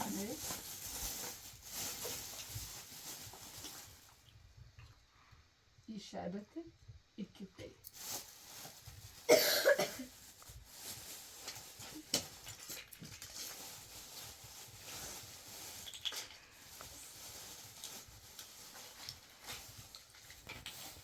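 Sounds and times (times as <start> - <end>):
rustling: 0.0 - 5.4, 7.8 - 21.0
loud cough: 9.3 - 10.1.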